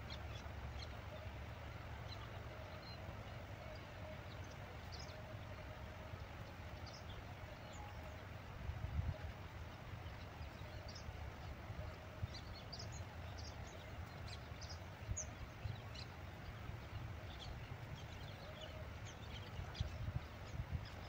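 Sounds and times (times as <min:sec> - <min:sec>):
wind rumble on microphone: 0:00.0 - 0:21.0.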